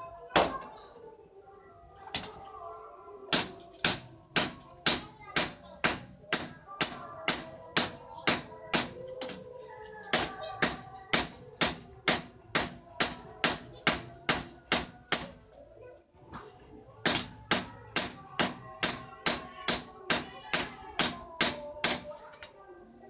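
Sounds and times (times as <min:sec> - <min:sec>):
hammer striking steel on anvil: 0:03.3 - 0:09.0, 0:10.1 - 0:15.4, 0:17.0 - 0:22.1.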